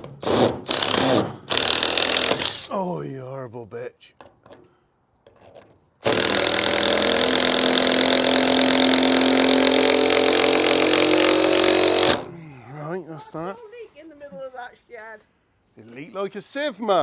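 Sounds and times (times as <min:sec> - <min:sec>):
power drill driving a screw: 0:00.0 - 0:02.7, 0:06.0 - 0:12.3.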